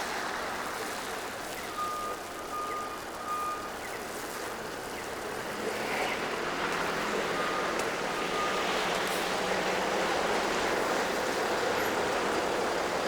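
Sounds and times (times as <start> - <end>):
city street traffic: 0.0 - 13.0
truck reversing beeper: 1.7 - 3.8, 7.3 - 9.0.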